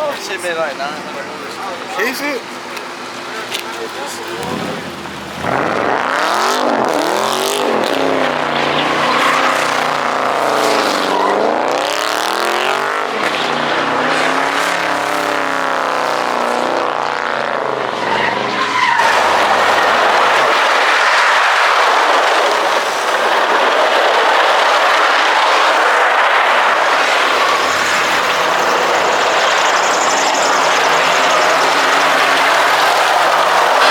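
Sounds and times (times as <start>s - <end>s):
car engine revving: 0.0s - 33.9s
tyres squealing: 24.4s - 33.9s.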